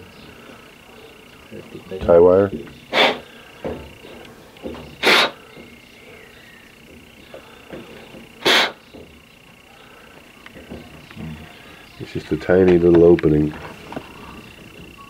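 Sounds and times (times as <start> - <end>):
puffs of breath through fitting: 2.9 - 3.6, 5.0 - 5.4, 8.4 - 8.8.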